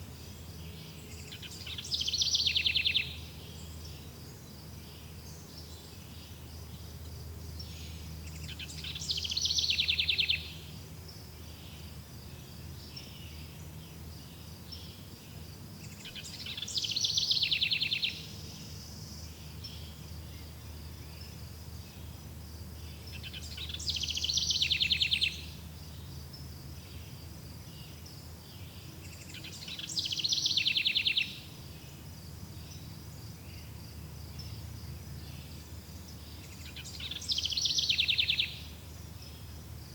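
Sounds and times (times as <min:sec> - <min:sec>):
songbird phrase with trill: 0:00.7 - 0:04.1, 0:07.7 - 0:10.7, 0:15.9 - 0:20.6, 0:22.9 - 0:26.0, 0:26.9 - 0:31.5, 0:35.2 - 0:39.5.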